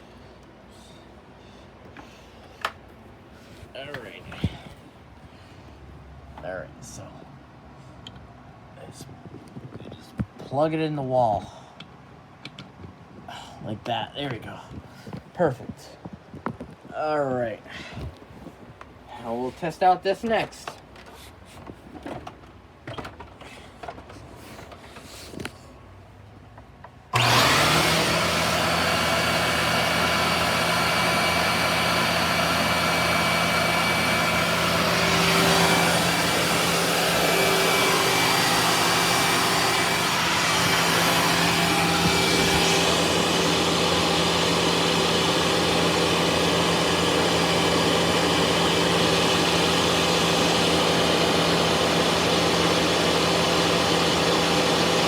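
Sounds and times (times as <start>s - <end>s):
vacuum cleaner motor whining: 27.2s - 55.0s.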